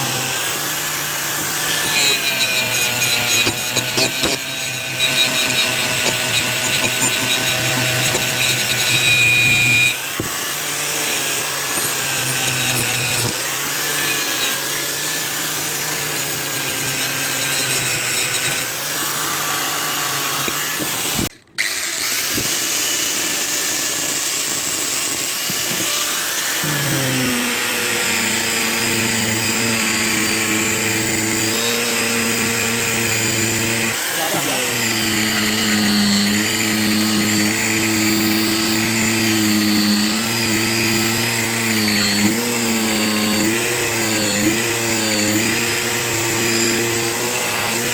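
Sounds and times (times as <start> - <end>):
electric buffing machine running: 0.0 - 47.9.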